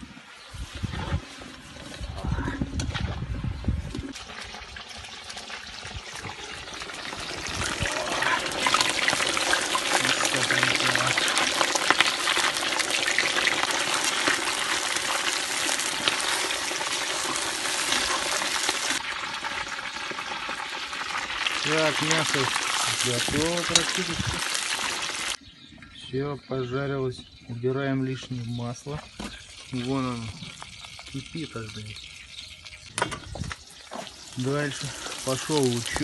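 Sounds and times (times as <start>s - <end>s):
meat sizzling in hot oil: 4.1s - 25.4s, 29.1s - 36.0s.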